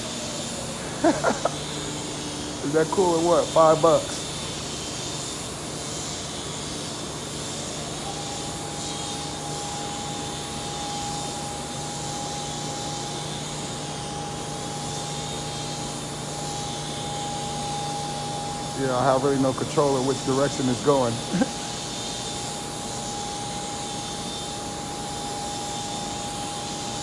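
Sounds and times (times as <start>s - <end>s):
toy helicopter rotors whirring: 0.2s - 10.8s, 18.7s - 27.0s.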